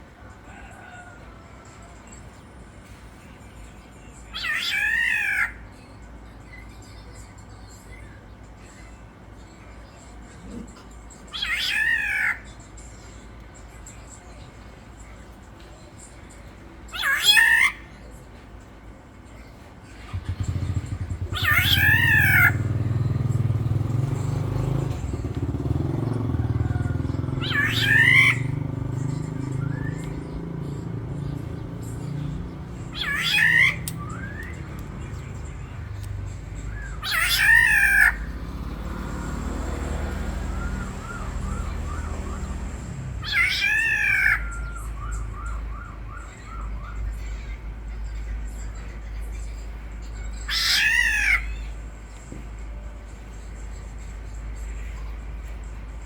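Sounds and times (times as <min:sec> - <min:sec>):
oriole harsh rasping calls: 0:11.3 - 0:12.5, 0:16.9 - 0:17.9, 0:20.0 - 0:46.9, 0:50.4 - 0:51.7.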